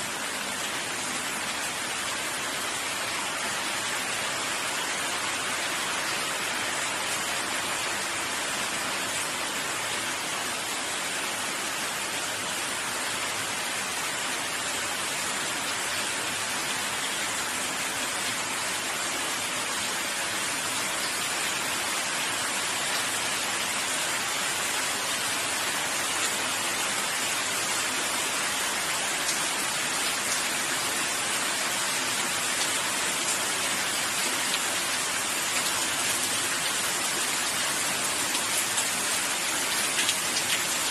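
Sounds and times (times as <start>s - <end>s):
rain pattering: 24.6s - 40.9s.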